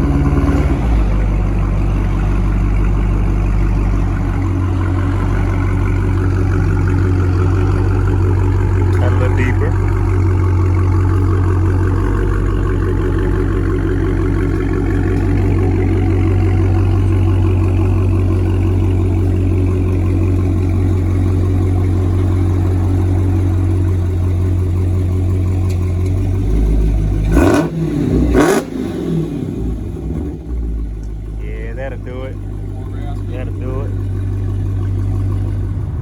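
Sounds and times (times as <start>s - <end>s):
car engine idling: 0.0s - 36.0s
engine revving sharply: 26.5s - 30.4s.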